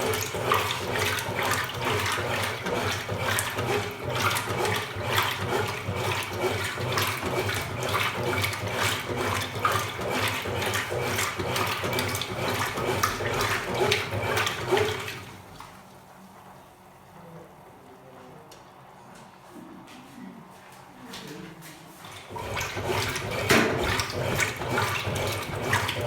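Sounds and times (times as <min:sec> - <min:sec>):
water churning in washing machine: 0:00.0 - 0:18.2, 0:21.1 - 0:26.0.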